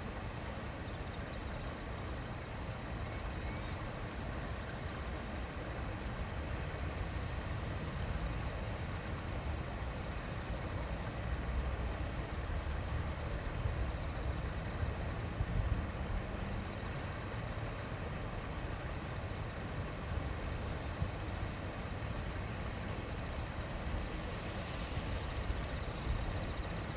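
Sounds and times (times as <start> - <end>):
shallow river flowing: 0.0 - 26.9.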